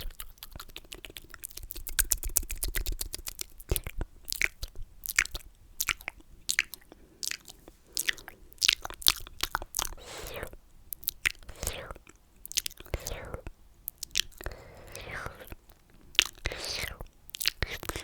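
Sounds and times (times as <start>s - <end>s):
wet lip and tongue clicks: 0.0s - 18.0s.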